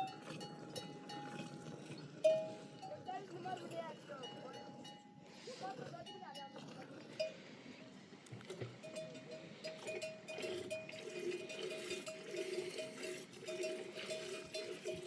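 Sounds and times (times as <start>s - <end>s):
livestock bells clanking: 0.0s - 6.6s, 8.8s - 15.0s.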